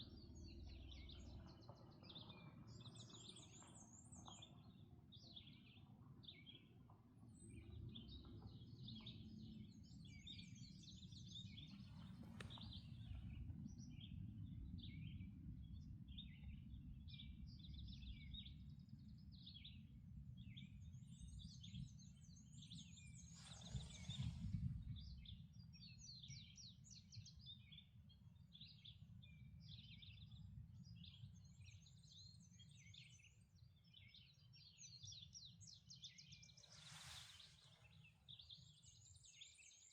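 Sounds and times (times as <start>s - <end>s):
songbirds singing and calling: 0.0s - 14.2s, 20.4s - 39.9s.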